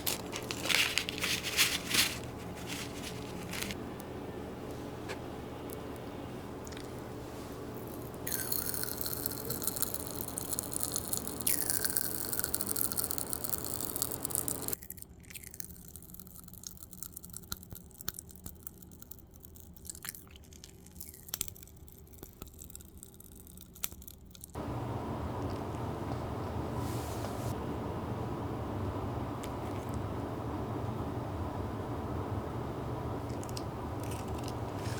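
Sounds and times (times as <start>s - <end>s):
water running: 0.0s - 3.8s, 12.2s - 14.8s, 24.6s - 34.9s.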